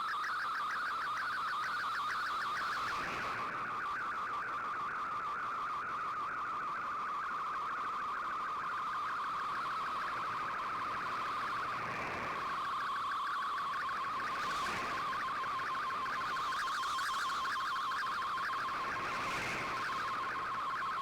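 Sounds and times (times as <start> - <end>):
warbling digital data tones: 8.3 - 21.0.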